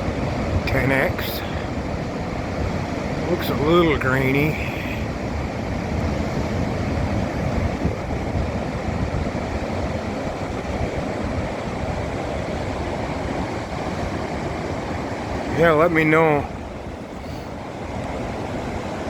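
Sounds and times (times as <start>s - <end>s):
ocean surf rushing: 0.0s - 19.0s
wind buffeting microphone: 0.0s - 19.0s.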